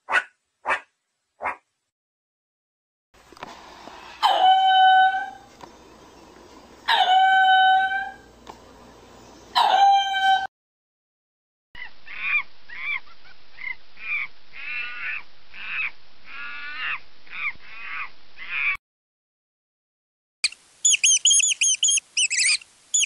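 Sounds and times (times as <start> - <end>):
animal calls: 11.8 - 18.8, 20.4 - 23.0
short repeated animal calls: 11.8 - 18.8, 20.4 - 23.0.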